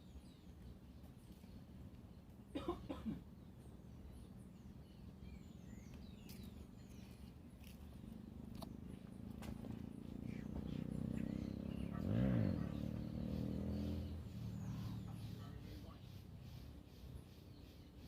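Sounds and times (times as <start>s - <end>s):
small birds chirping faintly: 0.0s - 18.0s
motor engine passing by: 6.3s - 17.3s.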